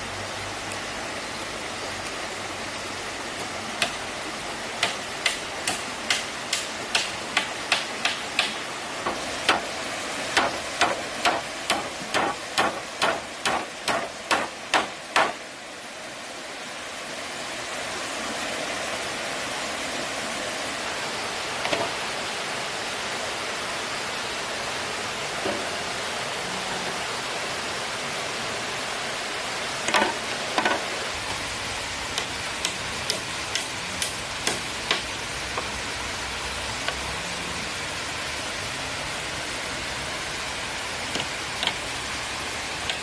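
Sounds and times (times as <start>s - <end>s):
flowing stream water: 0.0s - 43.0s
sharp tool strikes: 10.4s - 15.4s.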